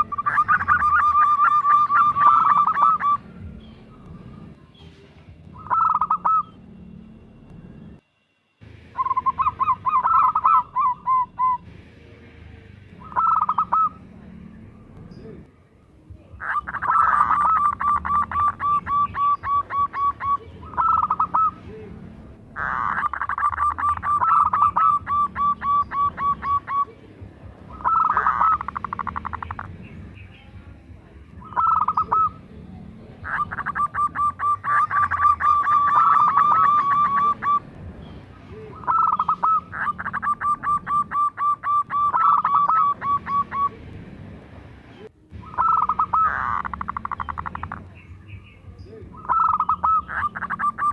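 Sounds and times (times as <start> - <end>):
dove staccato cooing: 0.0 - 4.6, 5.5 - 6.6, 9.0 - 11.7, 13.0 - 14.3, 16.3 - 30.2, 31.4 - 37.9, 38.6 - 43.9, 45.4 - 48.0, 49.0 - 50.9.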